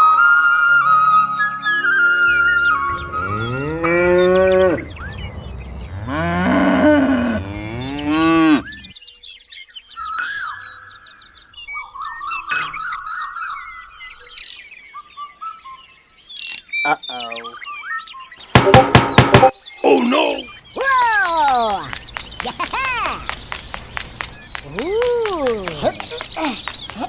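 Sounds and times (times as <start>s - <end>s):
birds chirping: 2.3s - 27.0s
cow mooing: 2.9s - 5.0s, 5.6s - 8.9s.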